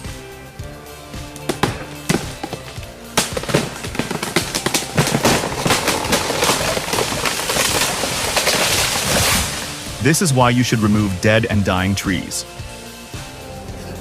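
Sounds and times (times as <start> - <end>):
background music: 0.0 - 14.0
loud snaps and cracks: 1.3 - 10.0.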